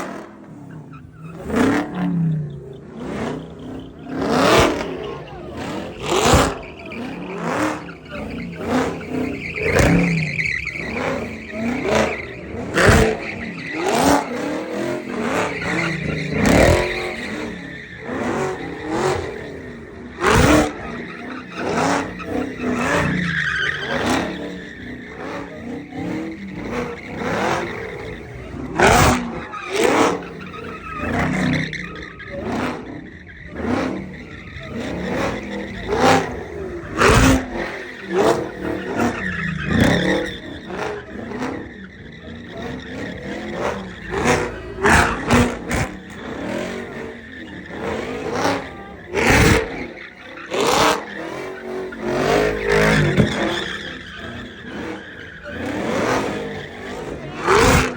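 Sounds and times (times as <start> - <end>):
car engines revving: 0.0 - 57.9
tires squealing: 0.0 - 57.9.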